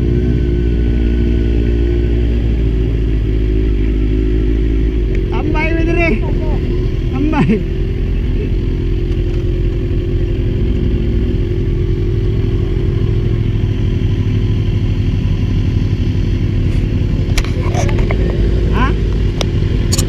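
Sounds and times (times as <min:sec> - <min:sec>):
motorcycle engine running: 0:00.0 - 0:20.0
sharp clicks: 0:19.2 - 0:20.0.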